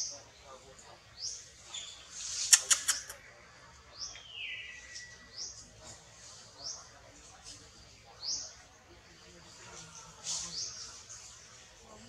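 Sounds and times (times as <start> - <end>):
sharp clicks: 2.5 - 3.2.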